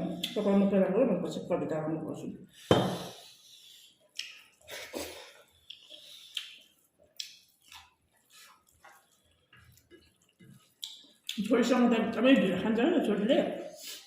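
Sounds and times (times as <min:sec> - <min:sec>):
wet chewing smacks: 0:04.1 - 0:11.5.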